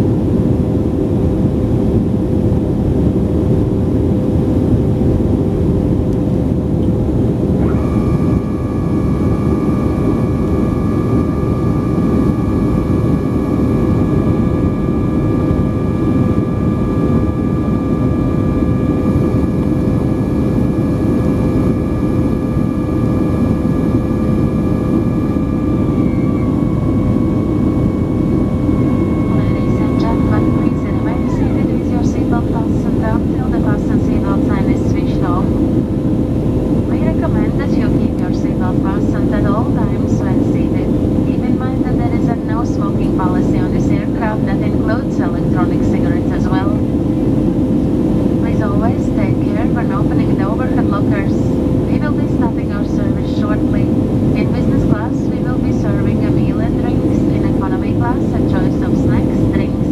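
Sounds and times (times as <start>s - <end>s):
constant hum: 0.0s - 59.9s
high multi-tone whine: 0.0s - 59.9s
jet engines and airflow rushing: 0.0s - 59.9s.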